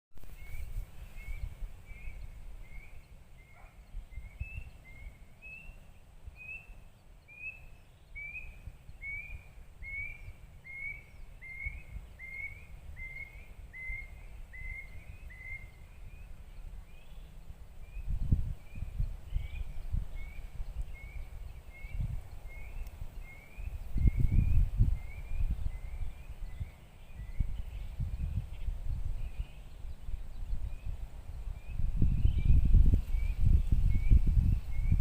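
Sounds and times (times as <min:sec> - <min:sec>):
bird chirping: 0:00.2 - 0:35.0.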